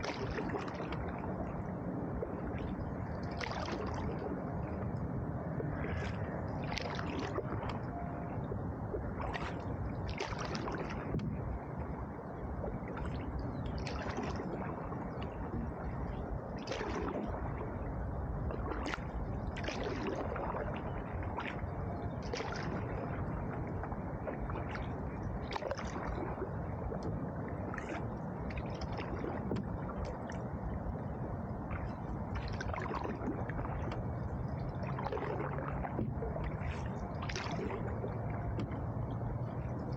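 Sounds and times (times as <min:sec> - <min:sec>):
paddle splash: 0:00.0 - 0:04.8, 0:05.6 - 0:11.8, 0:12.6 - 0:39.9
water sloshing against hull: 0:00.0 - 0:39.9.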